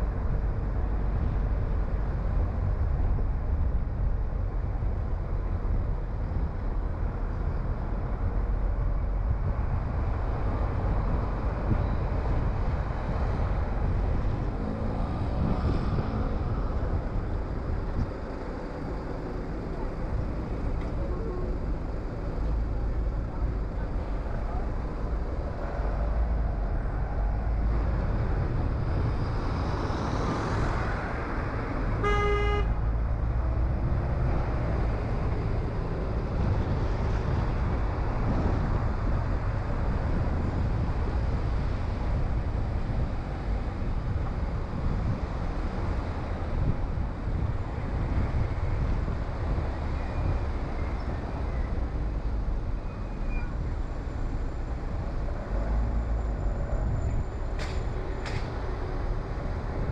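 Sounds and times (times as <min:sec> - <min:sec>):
car driving on road: 0:00.0 - 0:59.9
car horn toot: 0:32.0 - 0:32.8.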